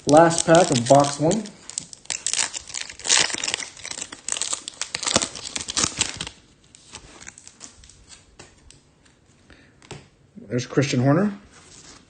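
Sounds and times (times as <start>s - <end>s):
foil wrapper tearing and crinkling: 0.0s - 8.3s.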